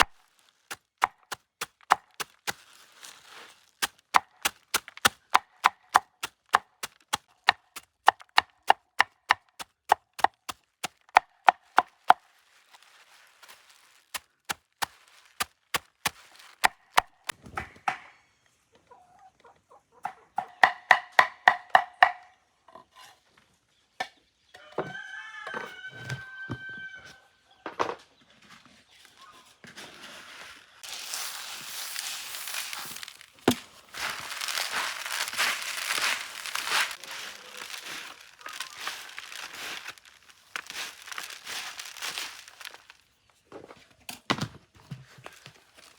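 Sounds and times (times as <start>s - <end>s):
rustling: 0.0s - 5.3s, 10.6s - 17.2s, 29.7s - 43.1s
chicken calling: 34.0s - 42.8s.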